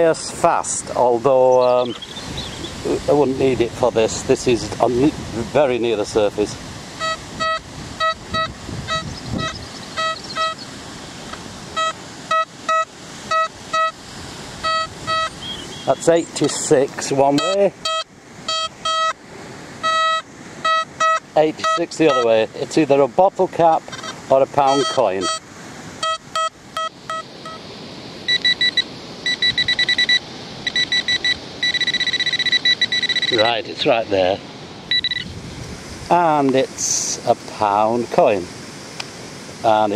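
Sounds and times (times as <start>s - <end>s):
metal detector beeping: 1.6s - 2.6s, 7.0s - 10.6s, 11.8s - 14.0s, 14.6s - 16.6s, 17.3s - 19.2s, 19.8s - 22.4s, 23.9s - 25.4s, 26.0s - 27.6s, 28.3s - 33.7s, 34.9s - 35.3s.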